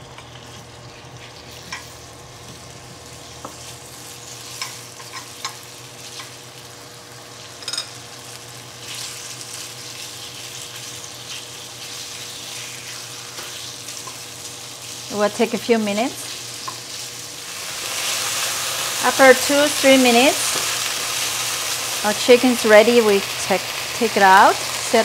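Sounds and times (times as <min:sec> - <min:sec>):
chicken sizzling in hot oil: 0:00.0 - 0:25.0
utensils tapping a pan: 0:07.6 - 0:08.0.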